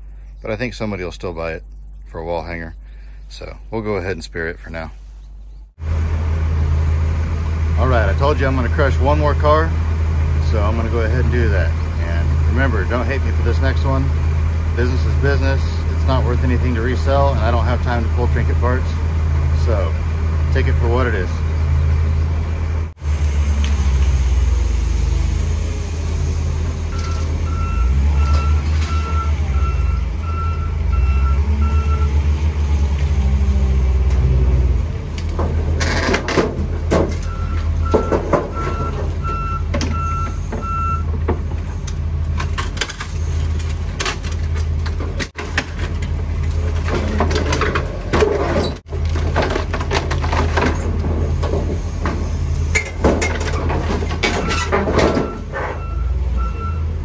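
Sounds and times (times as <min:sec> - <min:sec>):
heavy machine engine rumbling: 0:00.0 - 0:57.0
reversing alarm beeping: 0:26.9 - 0:32.2, 0:37.2 - 0:41.1, 0:54.4 - 0:56.9
metal clanks and crunches: 0:35.2 - 0:55.9.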